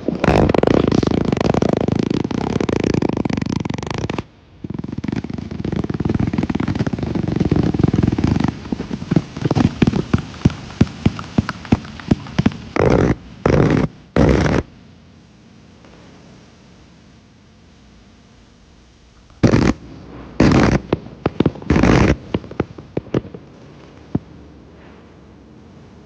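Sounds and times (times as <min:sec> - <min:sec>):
firework popping: 0:00.0 - 0:14.7, 0:19.2 - 0:24.6
firework sputtering and crackling: 0:00.0 - 0:14.7, 0:19.2 - 0:25.6
loud firework bursts: 0:00.0 - 0:14.7, 0:19.3 - 0:25.1.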